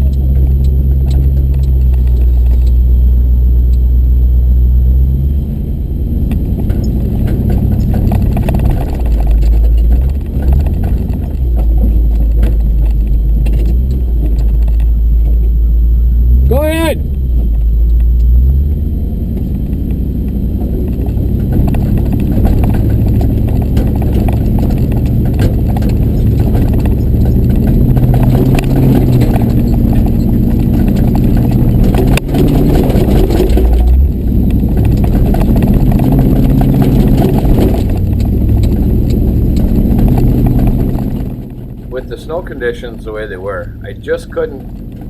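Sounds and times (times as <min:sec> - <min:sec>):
truck engine running: 0:00.0 - 0:45.0
clatter of small knocks: 0:06.3 - 0:15.4, 0:19.4 - 0:42.1.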